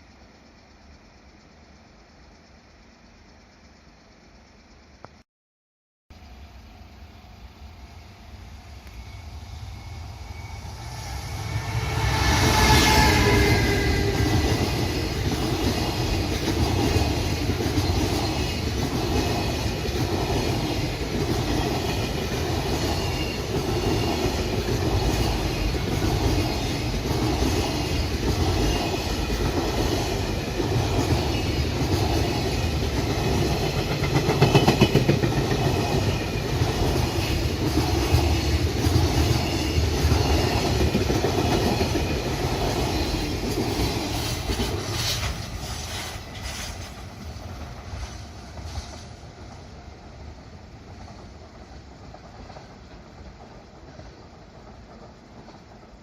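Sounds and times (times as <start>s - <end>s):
freight train passing: 6.2s - 56.0s
wheels clacking over rail joints: 12.6s - 49.0s.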